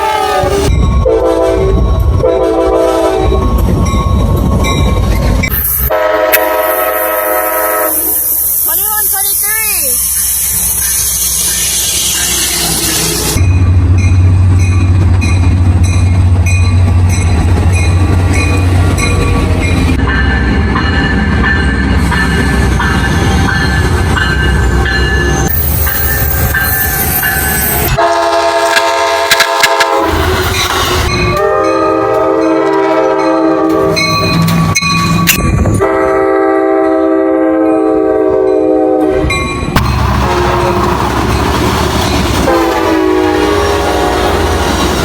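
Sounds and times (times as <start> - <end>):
locomotive air horn: 0.0 - 3.4, 5.9 - 8.2, 27.9 - 34.0, 35.8 - 39.3, 40.0 - 41.2, 42.4 - 45.0
train rumbling past: 0.0 - 45.0.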